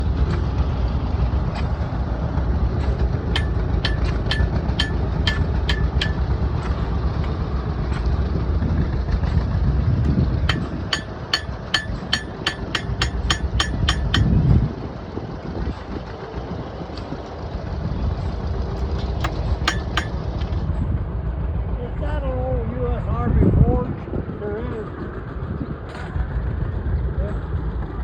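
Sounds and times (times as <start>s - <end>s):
low engine rumble: 0.0s - 28.0s
hammer striking anvil: 3.4s - 6.3s, 10.5s - 14.5s, 19.2s - 20.2s.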